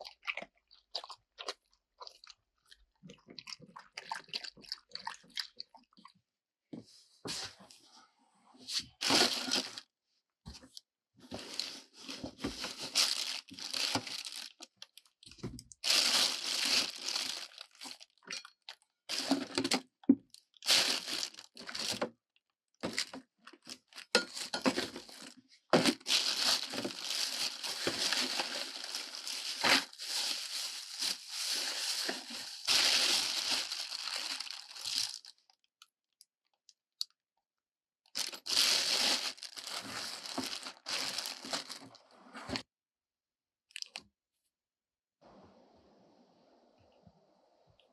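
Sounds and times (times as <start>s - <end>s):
dry material crumpled and torn: 9.0s - 9.8s, 11.4s - 22.1s, 22.8s - 35.4s, 38.2s - 42.6s.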